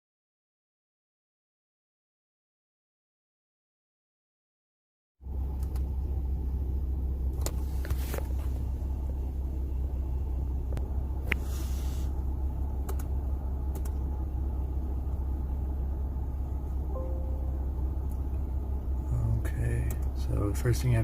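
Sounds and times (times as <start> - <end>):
steady low rumble: 5.2 - 21.0
short hiss: 11.3 - 12.1
sharp clicks: 12.8 - 13.1, 13.7 - 14.0, 19.8 - 20.1.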